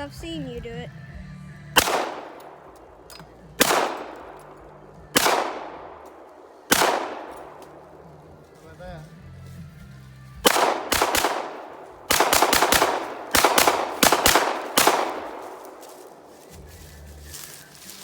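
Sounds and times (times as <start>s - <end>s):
pistol shots: 1.8s - 8.1s, 10.4s - 16.3s.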